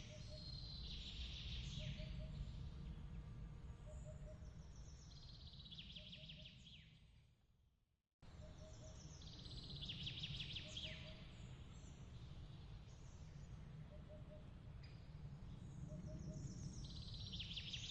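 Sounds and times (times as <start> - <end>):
steady low rumble: 1.6 - 5.0.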